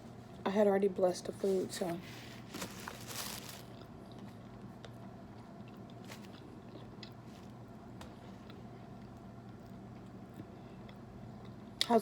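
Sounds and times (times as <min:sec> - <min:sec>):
chewing with small clicks: 0:03.7 - 0:07.2.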